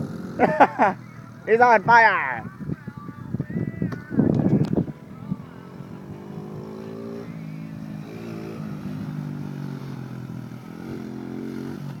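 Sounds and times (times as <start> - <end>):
dirt bike engine revving: 0.0 - 2.4, 5.4 - 12.0.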